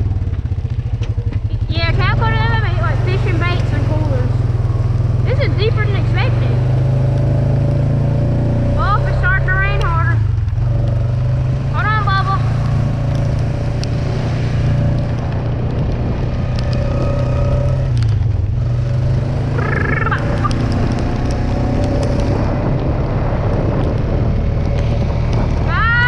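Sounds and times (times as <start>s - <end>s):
vehicle engine driving through mud: 0.0s - 26.0s
high rising-and-falling call: 19.5s - 20.6s.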